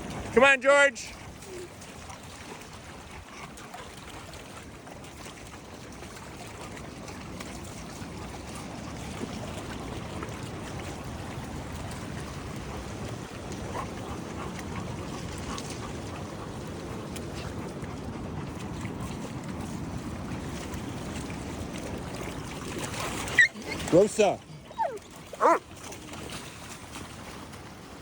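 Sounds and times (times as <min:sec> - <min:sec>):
running water: 0:00.0 - 0:28.0
beach surf: 0:07.4 - 0:25.7.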